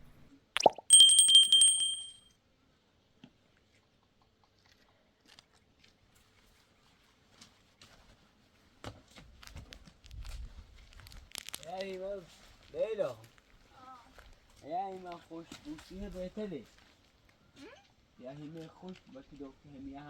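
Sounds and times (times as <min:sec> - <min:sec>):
metallic hit ringing like a bell: 0:00.9 - 0:02.2.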